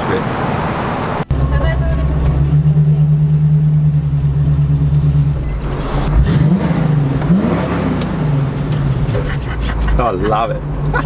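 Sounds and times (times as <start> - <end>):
car engine running and revving: 0.0 - 11.0.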